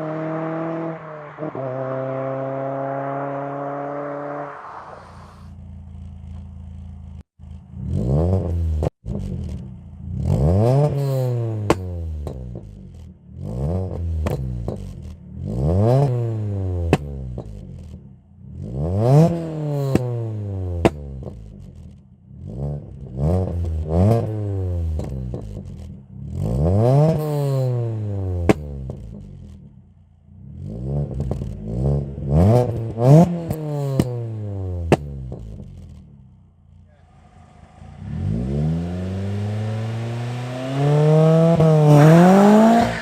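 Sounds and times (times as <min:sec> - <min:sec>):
car engine revving: 0:00.0 - 0:21.6, 0:22.3 - 0:43.0
exhaust cracks: 0:32.6 - 0:43.0.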